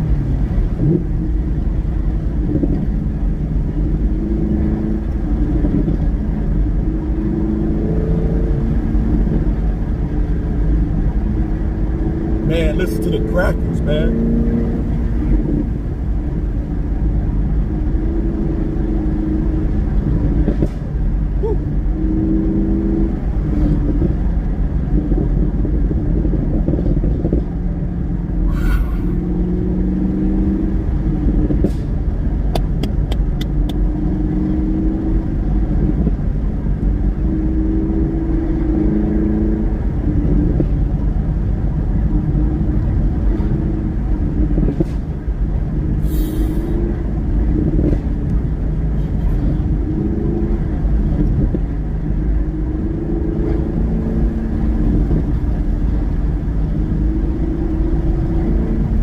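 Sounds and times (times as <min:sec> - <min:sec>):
car engine shifting through gears: 0:00.0 - 0:59.0.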